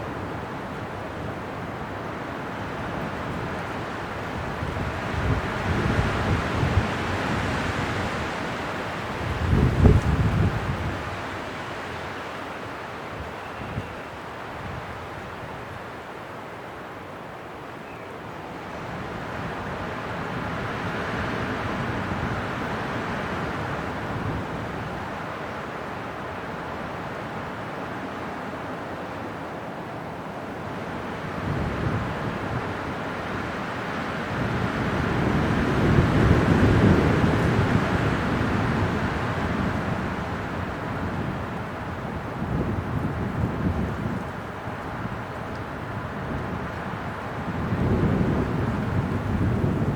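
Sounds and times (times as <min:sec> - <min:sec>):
wind blowing: 0:00.0 - 0:15.9, 0:29.7 - 0:49.9.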